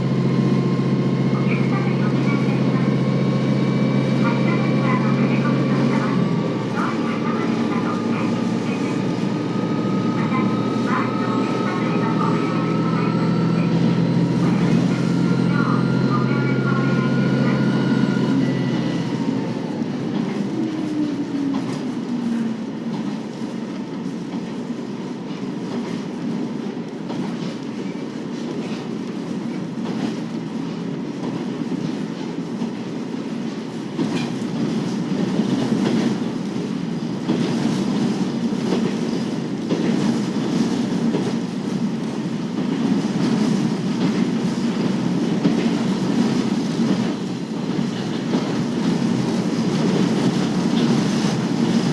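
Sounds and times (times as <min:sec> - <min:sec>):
railcar diesel engine: 0:00.0 - 0:51.9
wheel and rail rumble: 0:00.0 - 0:51.9
clickety-clack of rail joints: 0:17.2 - 0:51.9.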